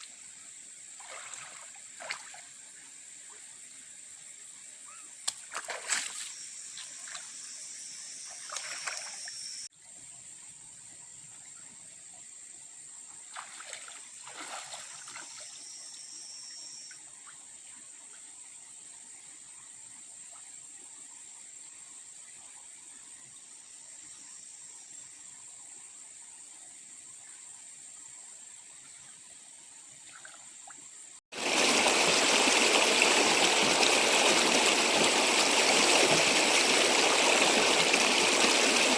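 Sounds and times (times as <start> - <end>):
water splashing and trickling: 0.0 - 7.6, 8.2 - 10.4, 13.1 - 15.8, 29.0 - 38.9
insect drone: 0.0 - 38.9
stream rushing: 31.3 - 38.9.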